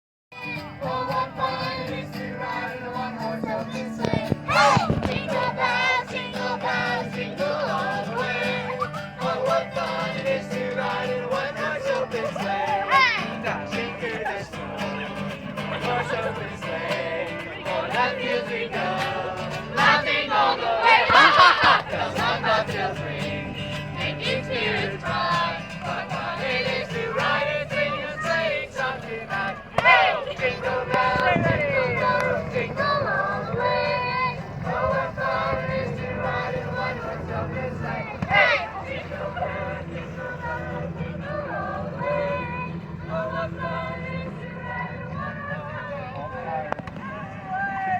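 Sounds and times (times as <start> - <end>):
group singing a carol: 0.4 - 47.9
steady low hum: 1.2 - 47.5
loud rising cry: 4.4 - 5.2, 20.0 - 22.8.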